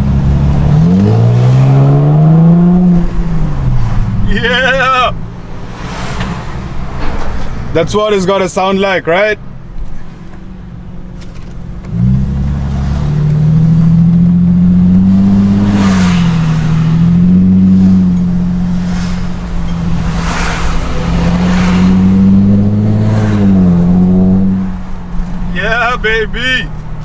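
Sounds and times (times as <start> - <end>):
loud car engine accelerating: 0.0 - 4.3, 11.8 - 25.0.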